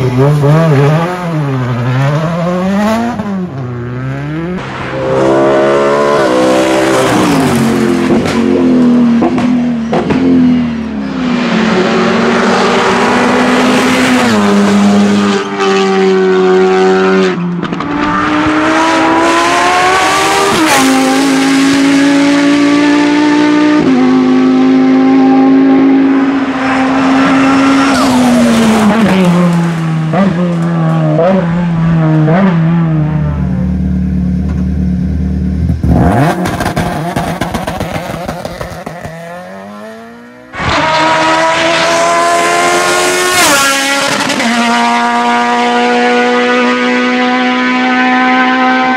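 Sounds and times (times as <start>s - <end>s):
race car engine at full throttle: 0.0s - 48.9s.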